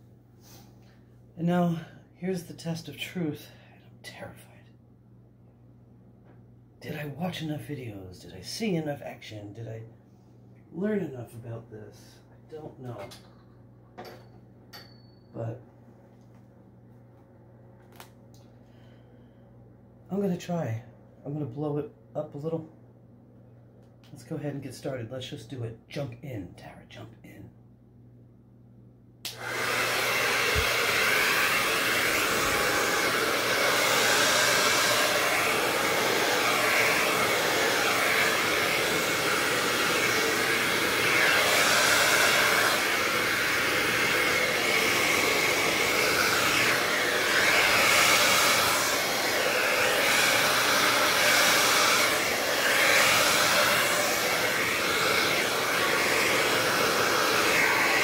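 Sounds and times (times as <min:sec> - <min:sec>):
hair dryer blowing: 0:29.2 - 0:58.0.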